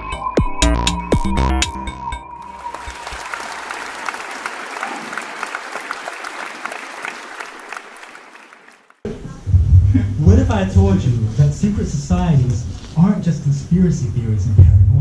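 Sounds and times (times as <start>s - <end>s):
audience applause: 2.4s - 9.0s.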